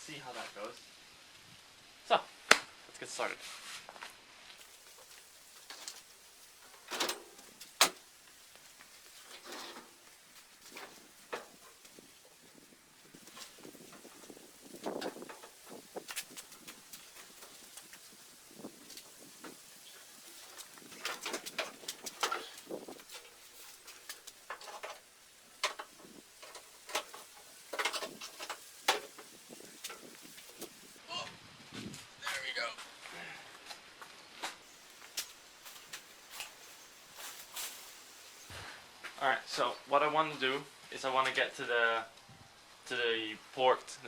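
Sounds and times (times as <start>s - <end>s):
scrape: 3.4s - 4.1s, 9.2s - 10.0s
rustling: 3.4s - 31.0s, 33.6s - 39.2s
hand tools clicking and knocking: 6.6s - 8.0s, 13.2s - 18.1s, 20.4s - 30.9s.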